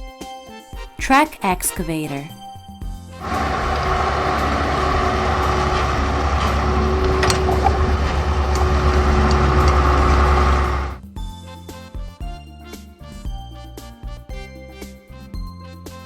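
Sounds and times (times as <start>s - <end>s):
clicks: 3.2s - 11.0s
excavator diesel engine rumbling: 3.2s - 11.0s.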